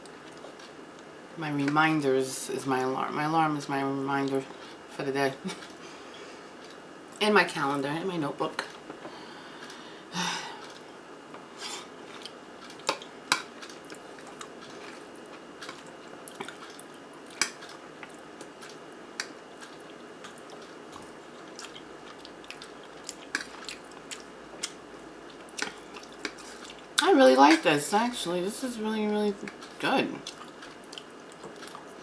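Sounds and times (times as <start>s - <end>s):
person chewing food: 6.5s - 7.2s, 10.5s - 27.0s, 29.4s - 32.0s.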